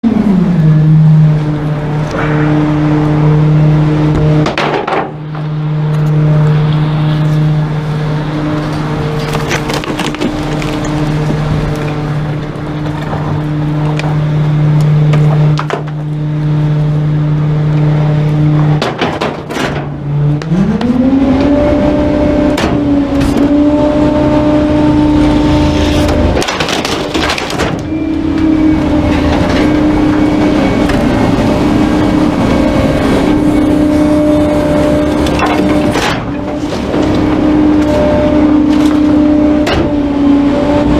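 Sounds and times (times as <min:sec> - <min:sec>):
truck diesel engine revving: 0:00.0 - 0:18.9, 0:19.8 - 0:40.9
knocks and cracks: 0:04.4 - 0:05.5, 0:09.1 - 0:14.2, 0:15.1 - 0:16.1, 0:18.7 - 0:20.9, 0:26.1 - 0:27.9.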